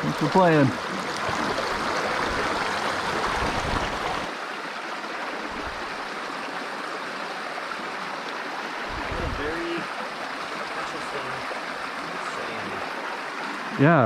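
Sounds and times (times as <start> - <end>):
stream flowing: 0.0 - 14.0.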